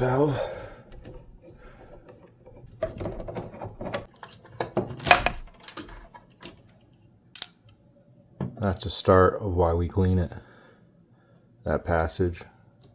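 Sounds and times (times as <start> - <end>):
hand tools clicking and knocking: 0.0 - 6.7.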